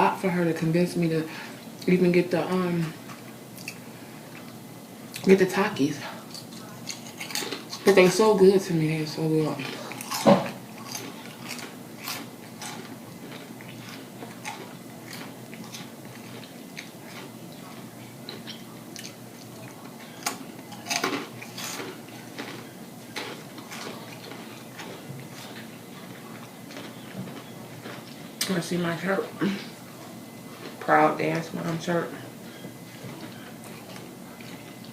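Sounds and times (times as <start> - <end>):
chewing crunchy chips: 6.2 - 8.2, 9.5 - 28.6, 31.6 - 34.9.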